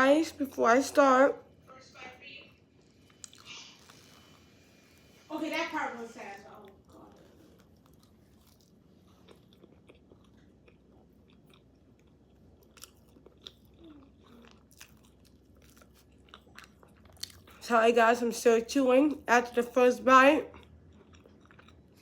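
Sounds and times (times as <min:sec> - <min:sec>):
chewing food with crunches: 0:02.4 - 0:05.2, 0:06.3 - 0:17.7, 0:20.4 - 0:22.0.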